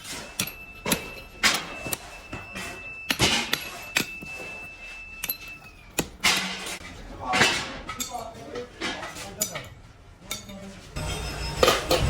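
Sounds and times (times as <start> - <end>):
steady high whine: 11.0 - 12.0.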